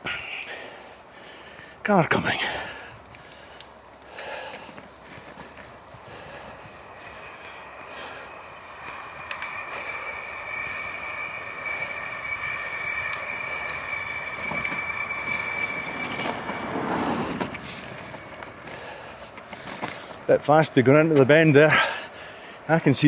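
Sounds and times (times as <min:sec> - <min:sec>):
bicycle wheels whining: 0:00.0 - 0:23.0
car passing: 0:02.3 - 0:22.7
wind noise: 0:02.4 - 0:20.8.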